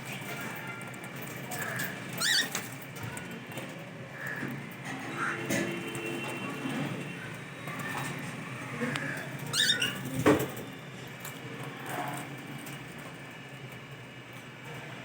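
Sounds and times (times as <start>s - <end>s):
high bird chirps: 2.2s - 2.6s, 9.5s - 10.0s.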